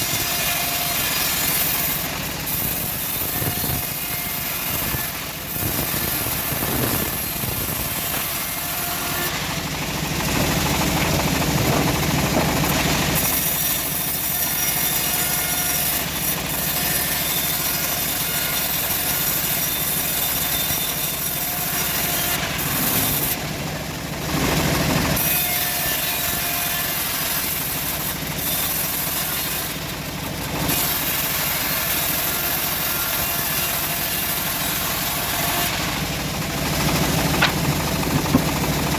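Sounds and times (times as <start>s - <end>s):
bandsaw sawing through log: 0.0s - 38.9s.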